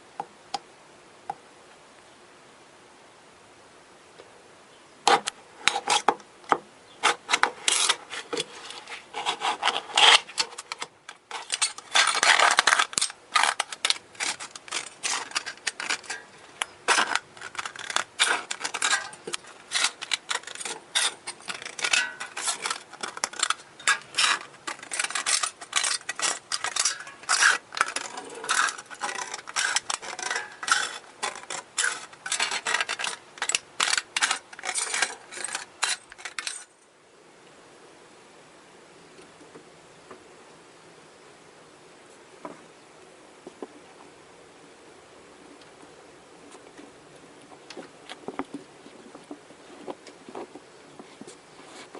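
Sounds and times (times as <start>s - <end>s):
hand tool scraping: 5.1s - 6.2s, 7.0s - 36.7s.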